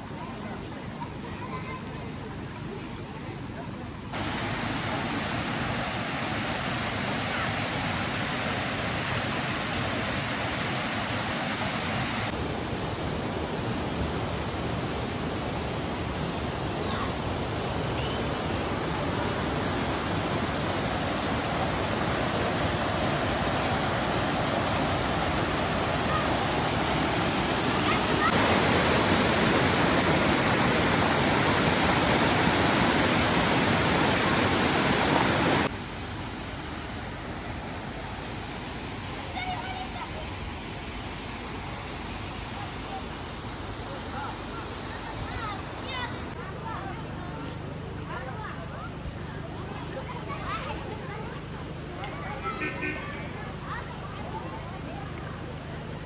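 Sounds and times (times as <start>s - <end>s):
waterfall roaring: 4.1s - 46.4s.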